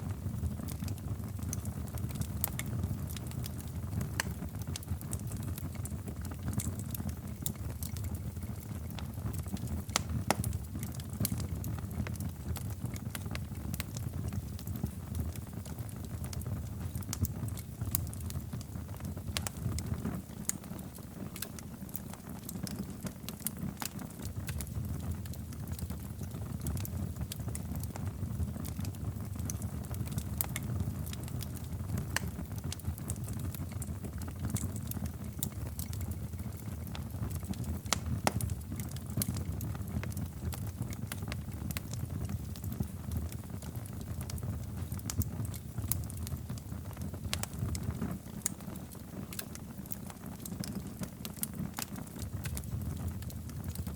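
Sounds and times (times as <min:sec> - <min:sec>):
fire popping and snapping: 0:00.0 - 0:53.9
flames rumbling: 0:00.0 - 0:53.9.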